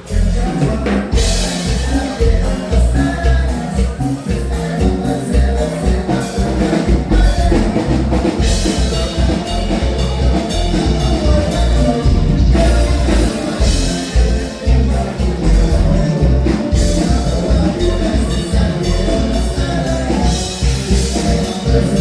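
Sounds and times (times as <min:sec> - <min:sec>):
live band music with drum beat: 0:00.0 - 0:22.0.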